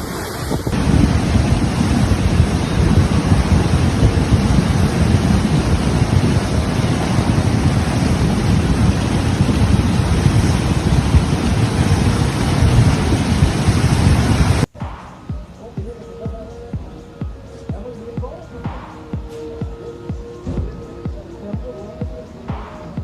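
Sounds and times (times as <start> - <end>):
storm wind blowing hard: 0.0 - 15.6.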